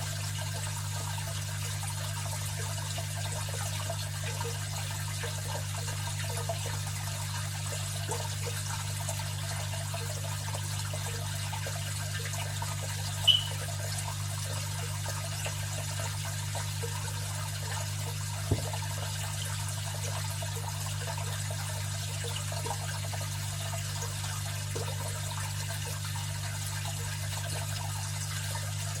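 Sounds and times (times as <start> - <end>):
aquarium filter humming: 0.0 - 29.0
trickling bubbling water: 0.0 - 29.0
sharp high-pitched chirp: 13.3 - 13.6.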